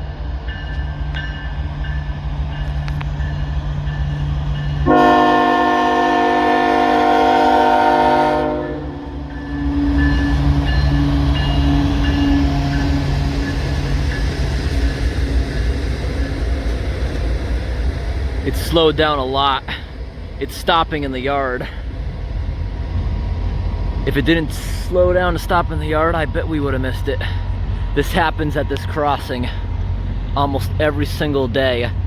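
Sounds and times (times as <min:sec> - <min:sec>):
passing train rumbling: 0:00.0 - 0:32.0
train horn: 0:04.8 - 0:13.5.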